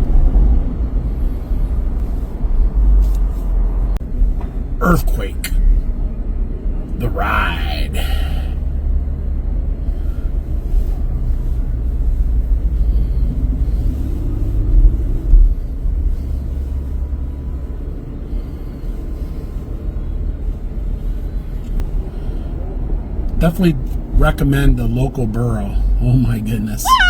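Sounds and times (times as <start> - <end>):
car road and engine rumble: 0.0 - 27.0.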